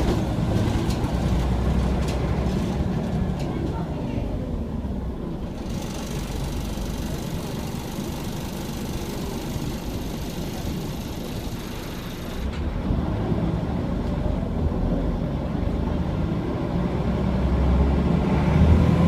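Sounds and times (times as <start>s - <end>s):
bus diesel engine rumbling: 0.0s - 18.1s.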